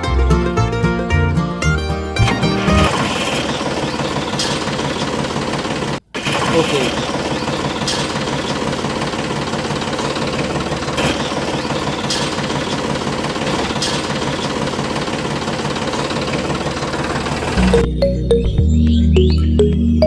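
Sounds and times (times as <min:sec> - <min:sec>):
small engine running: 0:02.7 - 0:17.9.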